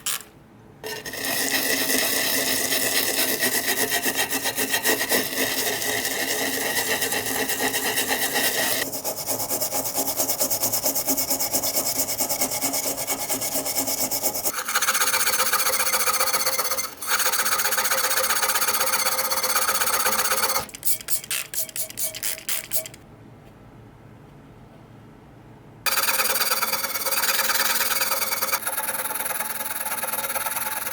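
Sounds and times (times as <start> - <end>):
scraping strokes: 0.8 - 23.0
tool rasping on metal: 0.8 - 23.0, 25.9 - 30.9.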